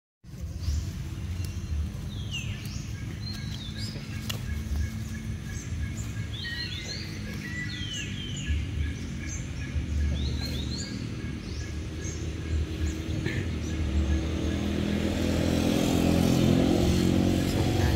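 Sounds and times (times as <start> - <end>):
birds chirping: 0.3 - 17.9
low outdoor rumble: 0.3 - 17.9.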